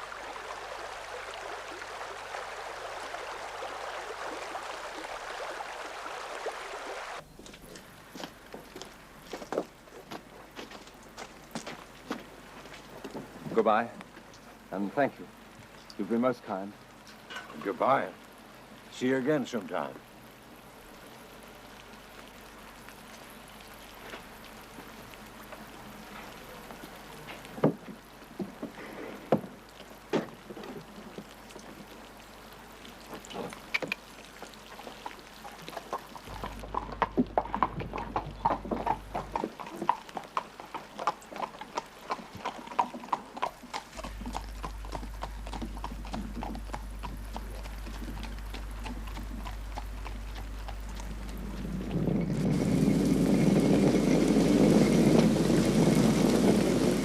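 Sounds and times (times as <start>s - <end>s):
horse hooves clip-clopping on road: 7.2s - 15.2s, 21.8s - 57.0s.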